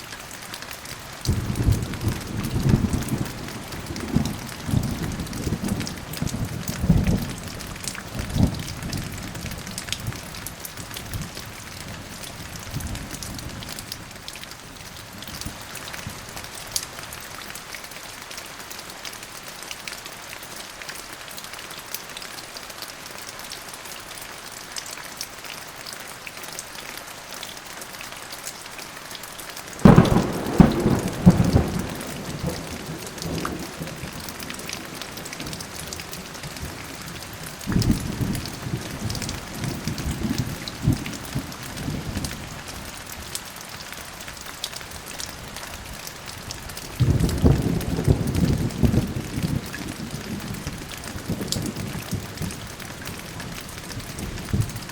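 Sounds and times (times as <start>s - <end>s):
steady rain falling: 0.0s - 54.9s
loud thunderclap: 29.8s - 34.1s, 47.0s - 50.6s
low thunder rumbling: 29.8s - 42.3s, 47.0s - 53.4s.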